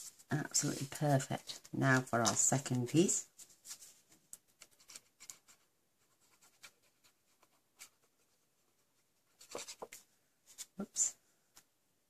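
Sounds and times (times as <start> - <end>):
paper pieces tapping and rustling: 0.5 - 3.0.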